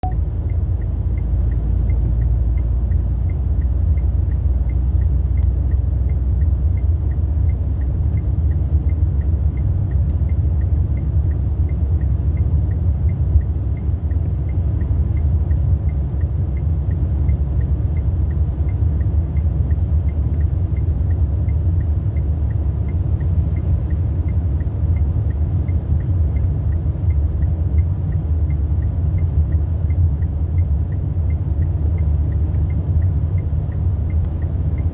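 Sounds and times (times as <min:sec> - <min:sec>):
car engine and tyre noise: 0:00.0 - 0:34.9
faint regular ticking: 0:00.0 - 0:34.9.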